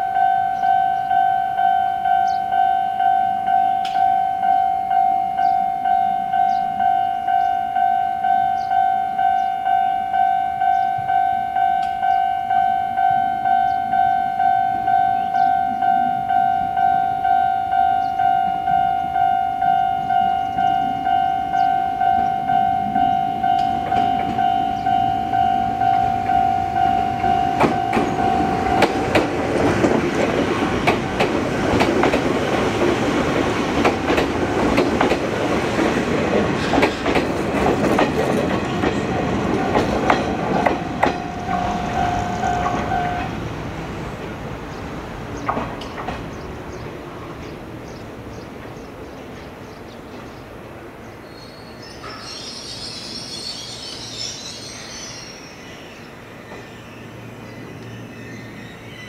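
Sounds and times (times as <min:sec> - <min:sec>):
level crossing alarm ringing: 0:00.0 - 0:35.1, 0:38.5 - 0:43.4
train wheels clattering over rail joints: 0:27.1 - 0:43.4, 0:45.4 - 0:46.8.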